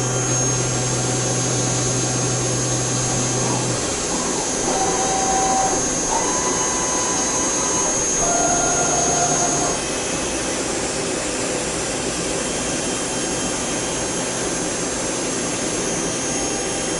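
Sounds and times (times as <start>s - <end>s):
machine tool cutting metal: 0.0s - 9.8s
thin whining tones: 0.0s - 9.8s.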